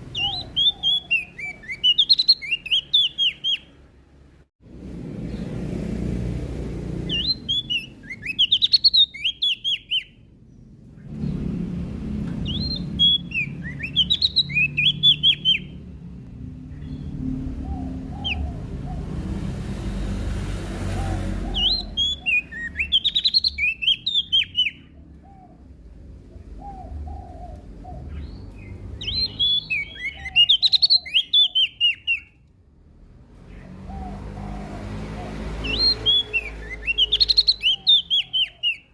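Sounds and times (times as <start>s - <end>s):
bird high twittering: 0.0s - 3.8s, 7.1s - 10.3s, 12.4s - 15.8s, 16.8s - 19.0s, 21.0s - 25.6s, 26.6s - 32.4s, 35.6s - 38.9s.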